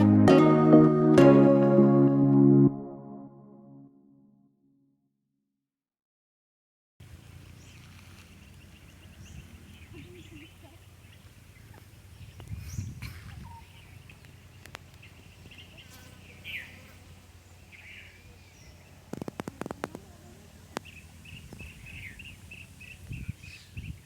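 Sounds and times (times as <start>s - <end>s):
birds chirping: 7.2s - 24.0s.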